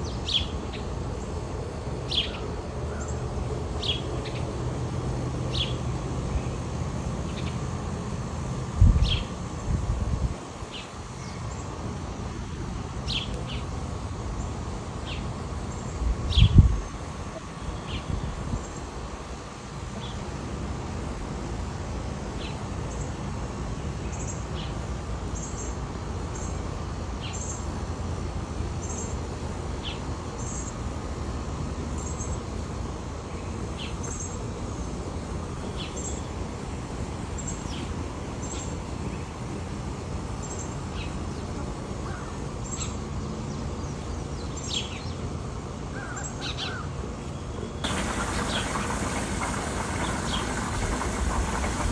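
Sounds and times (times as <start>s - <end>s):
birds chirping: 47.6s - 51.9s
low background rumble: 47.8s - 51.9s.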